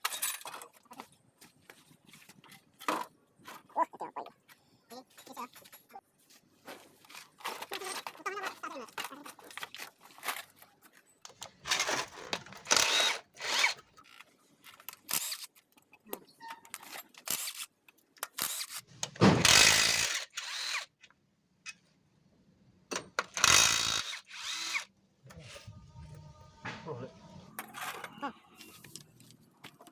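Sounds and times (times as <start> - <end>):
power tool running: 12.7 - 13.8.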